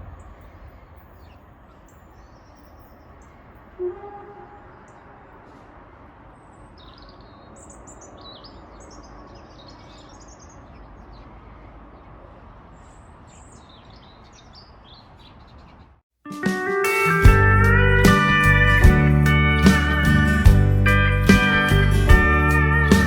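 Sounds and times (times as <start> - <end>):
small birds chirping: 0.0 - 3.8, 4.4 - 16.0.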